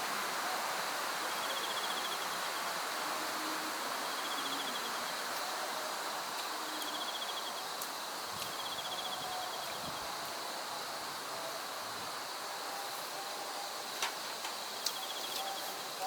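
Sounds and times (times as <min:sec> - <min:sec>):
background hiss: 0:00.0 - 0:16.0
high insect drone: 0:00.4 - 0:16.0
pulsed insect trill: 0:14.9 - 0:16.0.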